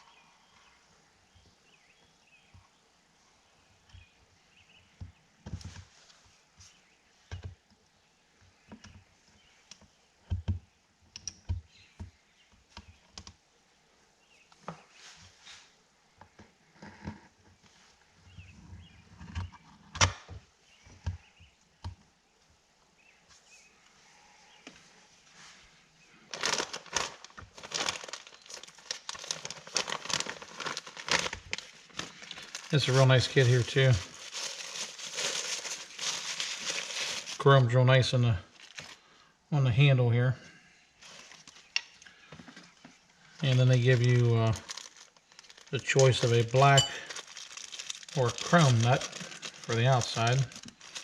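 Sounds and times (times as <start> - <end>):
packaging crinkling and rustling: 26.3 - 37.5, 38.5 - 39.0, 41.0 - 41.8, 42.4 - 51.0.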